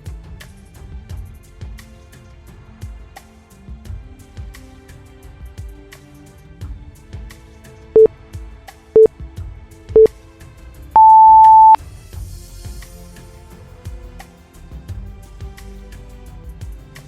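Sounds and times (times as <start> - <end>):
background music with a beat: 0.0 - 10.2, 11.0 - 17.0
timer beeps: 11.0 - 11.8.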